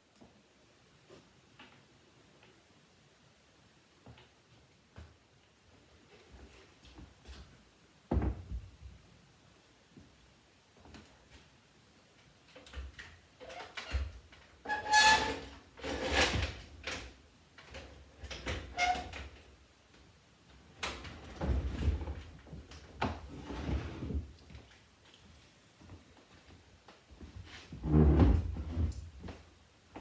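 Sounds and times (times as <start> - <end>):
furniture parts sliding and scraping: 23.1 - 24.3.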